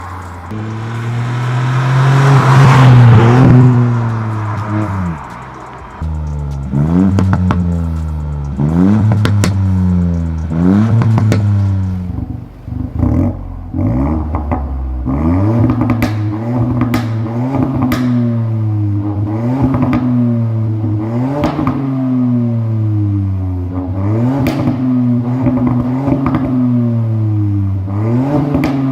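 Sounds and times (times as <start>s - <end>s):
car engine revving: 0.0s - 28.9s
exhaust crackles and pops: 2.4s - 18.3s, 19.0s - 20.3s, 24.3s - 26.7s, 28.3s - 28.9s.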